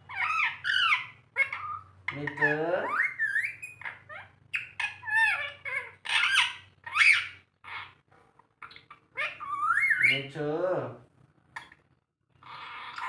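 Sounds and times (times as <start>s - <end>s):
parakeet squawking and chattering: 0.0s - 10.6s, 11.4s - 13.0s.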